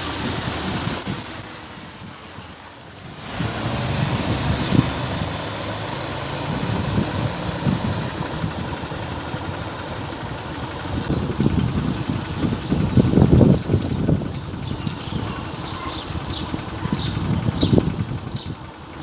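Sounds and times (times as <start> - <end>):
road and wind rumble: 0.0 - 19.0
vehicle engine running: 0.0 - 19.0.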